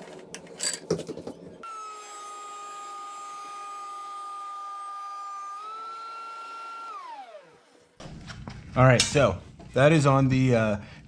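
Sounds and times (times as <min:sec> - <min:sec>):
thickness planer motor whining: 0:01.6 - 0:08.0.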